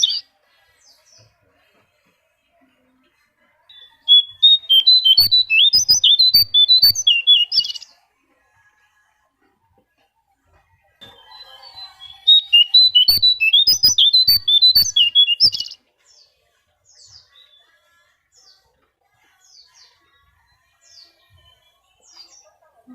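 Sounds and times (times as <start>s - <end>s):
bird warbling chirps: 0.0s - 0.2s, 3.8s - 7.8s, 11.1s - 15.8s.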